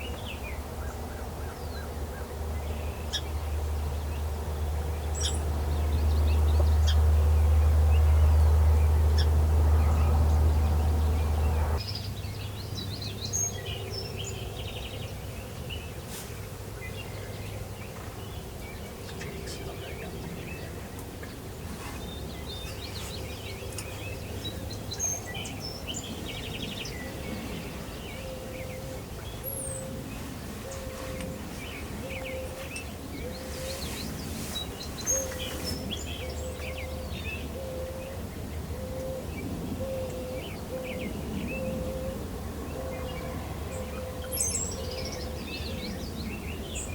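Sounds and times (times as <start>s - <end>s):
songbirds chirping and singing: 0.0s - 46.9s
low rumble: 3.4s - 11.8s.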